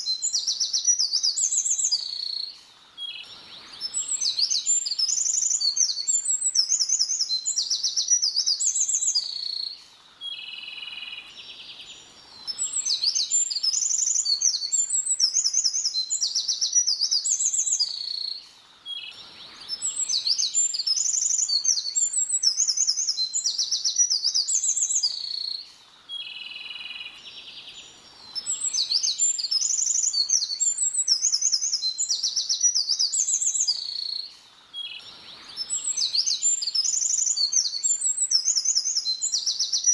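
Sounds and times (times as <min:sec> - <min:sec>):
songbird trills and whistles: 0:00.0 - 0:39.9.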